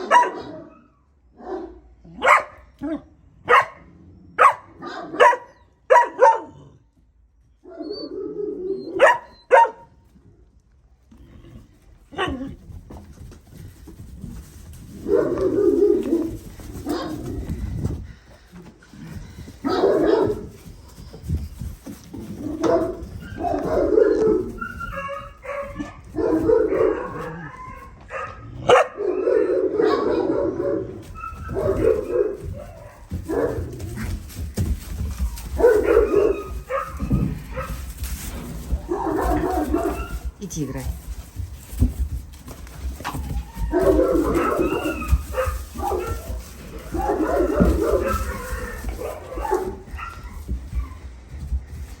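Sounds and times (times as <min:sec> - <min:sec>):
puppies barking: 0:00.0 - 0:00.7, 0:04.4 - 0:06.6, 0:08.8 - 0:09.9, 0:19.6 - 0:21.2, 0:22.2 - 0:40.4, 0:41.2 - 0:51.2.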